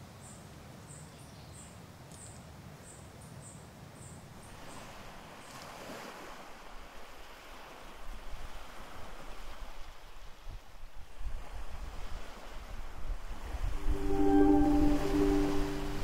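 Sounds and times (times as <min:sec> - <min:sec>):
sea waves washing on shore: 0:04.5 - 0:16.0.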